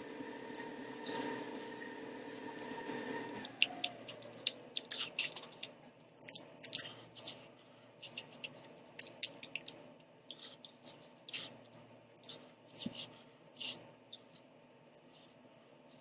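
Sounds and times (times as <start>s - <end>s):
steady hum: 0.0s - 16.0s
chewing and slurping noodles: 3.3s - 5.9s.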